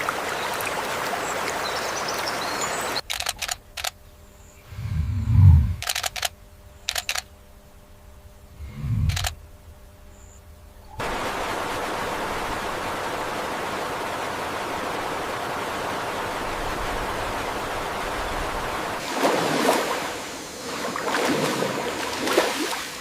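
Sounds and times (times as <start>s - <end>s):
uneven swishes: 4.6s - 5.8s, 8.6s - 9.4s
steady rushing noise: 4.6s - 6.0s, 8.5s - 9.4s.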